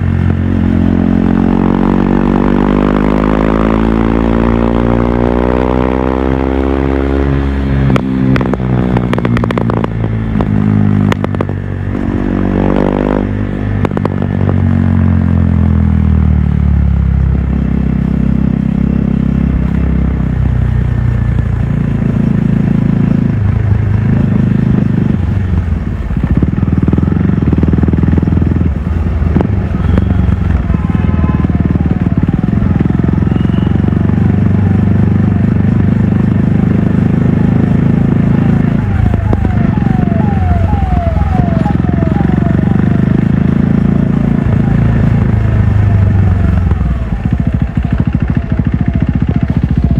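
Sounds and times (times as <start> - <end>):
motorcycle engine revving: 0.0 - 49.9
exhaust pops and crackles: 7.9 - 14.7, 29.2 - 49.9.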